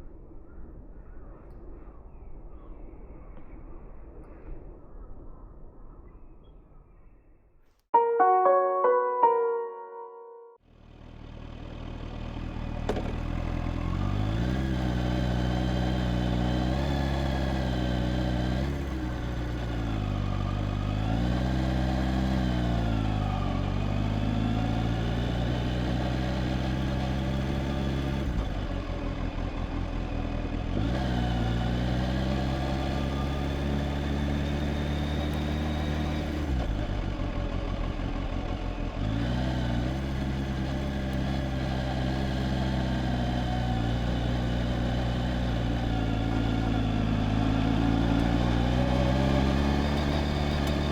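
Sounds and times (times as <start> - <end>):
motorcycle engine revving: 12.6 - 50.9.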